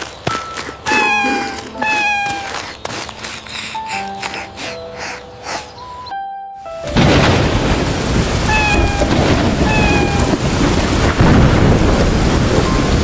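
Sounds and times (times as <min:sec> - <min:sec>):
kitten meowing: 0:00.9 - 0:02.7, 0:08.5 - 0:10.4
heavy rain: 0:06.9 - 0:13.0
thunder: 0:07.0 - 0:13.0.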